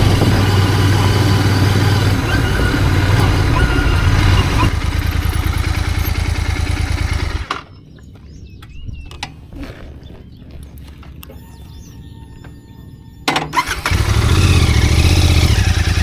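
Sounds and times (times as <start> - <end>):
motorcycle engine running: 0.0 - 7.8, 13.6 - 16.0.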